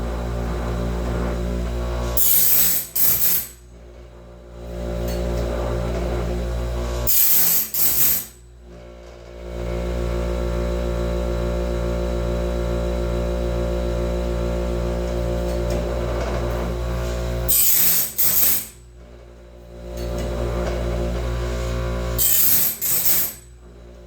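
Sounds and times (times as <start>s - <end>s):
harsh grinding noise: 0.0s - 3.6s, 7.0s - 8.4s, 17.0s - 18.8s, 20.4s - 23.5s
motor hum: 0.0s - 7.2s.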